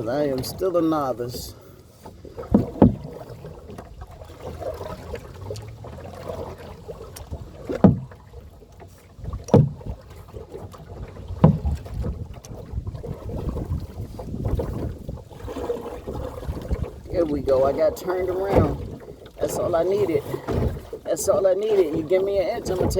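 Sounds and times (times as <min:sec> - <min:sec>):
canoe paddle strokes in water: 0:00.0 - 0:22.9
wind noise on microphone: 0:11.0 - 0:21.0.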